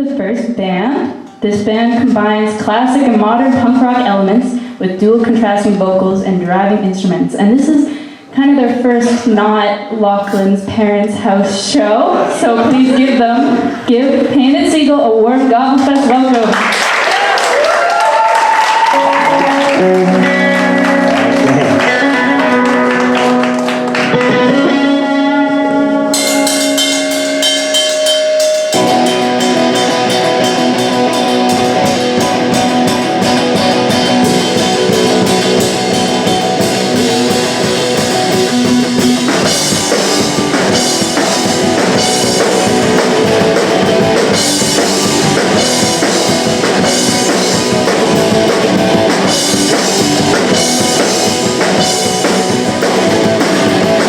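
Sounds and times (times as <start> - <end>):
drum kit: 17.1 - 54.0
electric guitar: 18.4 - 54.0
punk rock band playing: 18.4 - 54.0.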